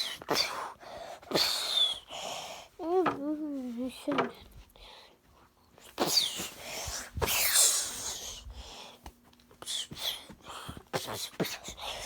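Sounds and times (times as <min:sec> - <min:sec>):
breathy hissing voice bursts: 0:06.0 - 0:08.4.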